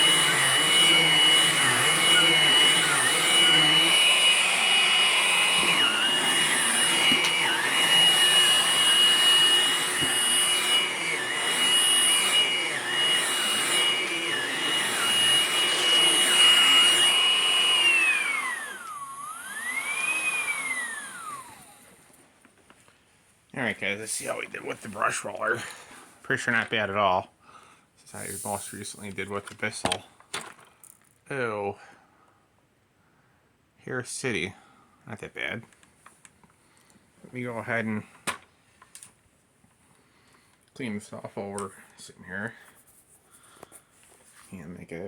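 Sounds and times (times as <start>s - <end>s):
stick vacuum motor whine: 0.0s - 22.0s.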